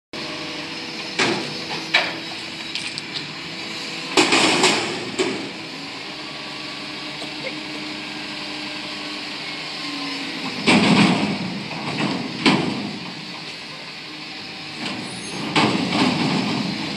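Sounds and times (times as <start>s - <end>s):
garbage truck running: 0.2s - 16.9s
loud bangs and clanks: 4.1s - 5.6s, 10.4s - 13.2s, 14.8s - 16.9s.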